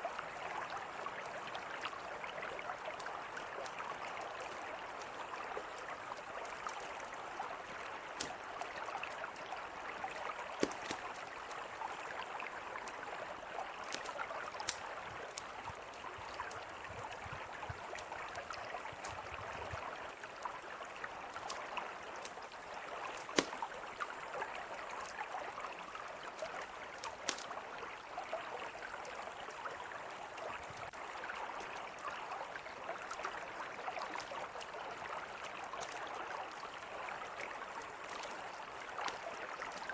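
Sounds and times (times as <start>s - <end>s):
mountain river flowing: 0.0s - 39.9s
campfire crackling: 1.2s - 19.5s, 20.2s - 24.1s, 26.6s - 27.6s, 37.5s - 39.9s.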